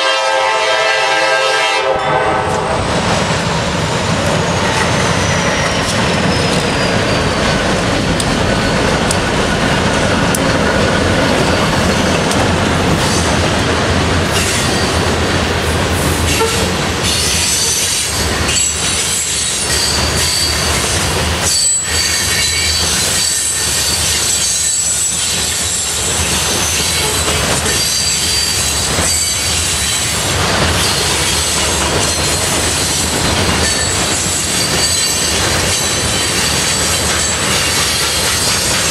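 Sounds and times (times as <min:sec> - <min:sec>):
freight train wheels clattering: 0:02.5 - 0:38.9
high-pitched wheel squeal: 0:04.5 - 0:07.8, 0:21.4 - 0:30.0, 0:33.6 - 0:38.0.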